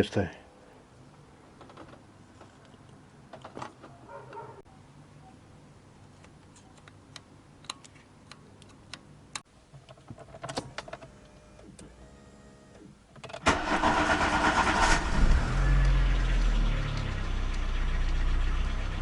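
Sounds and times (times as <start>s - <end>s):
car engine cranking and starting: 13.4s - 19.0s.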